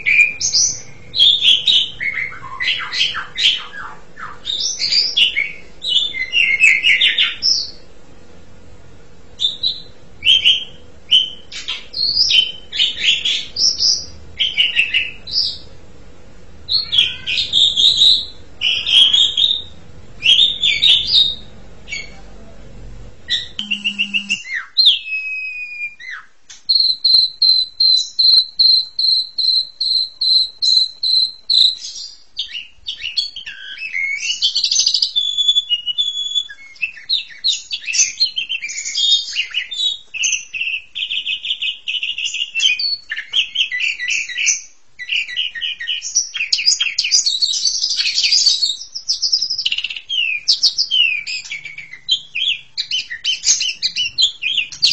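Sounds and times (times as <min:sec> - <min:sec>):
starling singing: 0:00.0 - 0:08.5, 0:09.2 - 0:24.5, 0:49.4 - 0:54.9.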